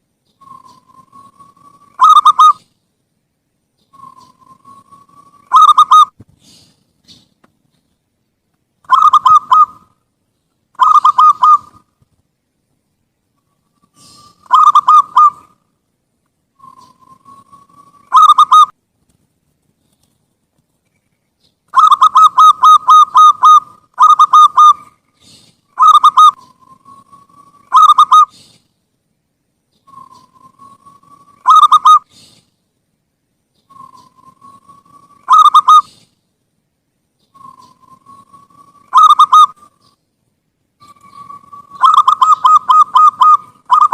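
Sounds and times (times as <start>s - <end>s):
dove cooing: 0.4s - 2.7s, 4.0s - 6.1s, 8.9s - 9.9s, 10.8s - 11.9s, 13.9s - 15.6s, 16.6s - 18.7s, 21.8s - 28.6s, 29.9s - 32.3s, 33.7s - 36.1s, 37.3s - 39.8s, 40.8s - 43.9s.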